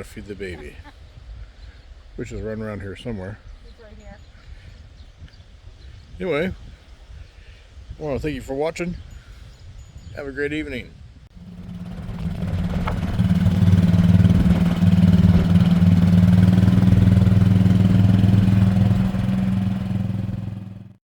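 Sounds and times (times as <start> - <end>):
engine idling: 11.3 - 21.0.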